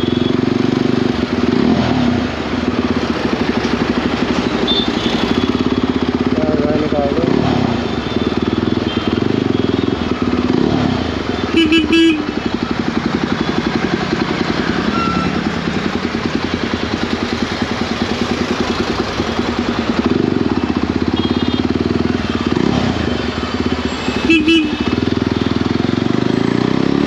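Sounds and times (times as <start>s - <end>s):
motorcycle engine running: 0.0s - 27.0s
vehicle horn beeps: 4.5s - 5.8s, 7.8s - 10.1s, 11.4s - 12.5s, 21.1s - 21.8s, 23.8s - 25.0s.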